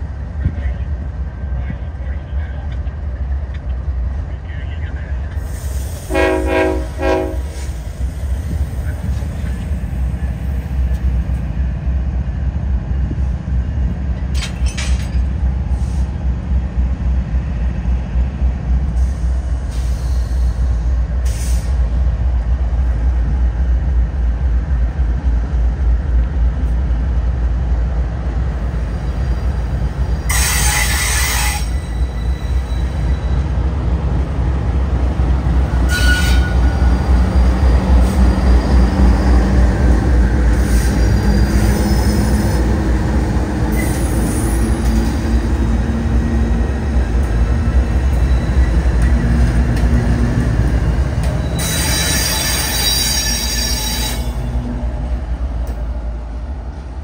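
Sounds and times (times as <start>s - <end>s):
railcar wheels rumbling: 0.0s - 57.0s
high-pitched wheel squeals: 30.3s - 33.4s, 35.9s - 39.3s, 51.2s - 54.6s.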